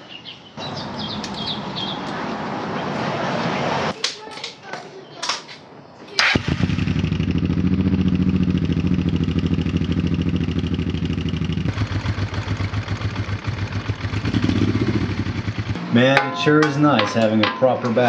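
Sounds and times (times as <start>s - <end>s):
motorcycle engine running: 6.3s - 16.1s.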